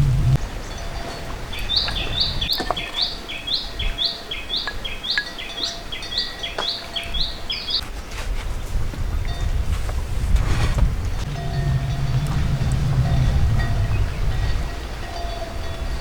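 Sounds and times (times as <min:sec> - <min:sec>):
bird singing: 0:00.0 - 0:07.8.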